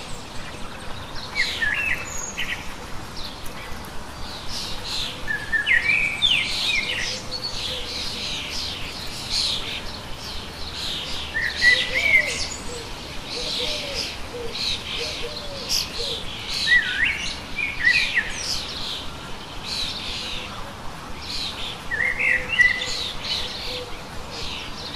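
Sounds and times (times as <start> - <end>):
birds chirping and whistling: 4.4 - 19.0, 21.3 - 24.9.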